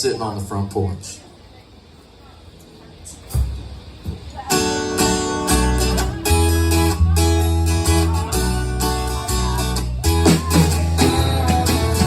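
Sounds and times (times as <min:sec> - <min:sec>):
acoustic guitar strumming chords: 0:04.5 - 0:12.0.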